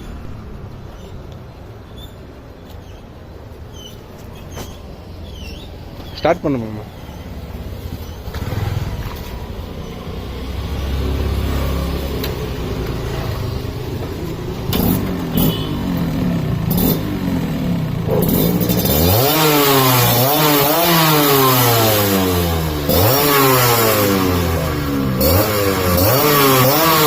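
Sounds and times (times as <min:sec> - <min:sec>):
two-stroke motorcycle engine revving: 0:07.4 - 0:27.0.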